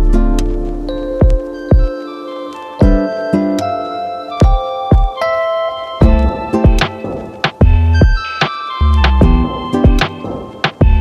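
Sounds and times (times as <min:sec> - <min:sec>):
music with held melodic notes: 0:00.0 - 0:11.0
low drum hit: 0:06.0 - 0:06.9, 0:07.6 - 0:08.2, 0:09.2 - 0:10.1.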